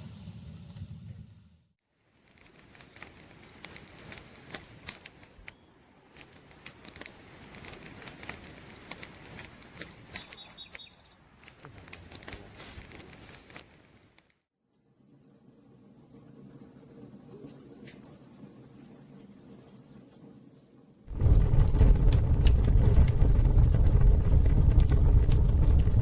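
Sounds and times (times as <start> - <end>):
campfire crackling: 2.2 - 10.4, 21.1 - 26.0.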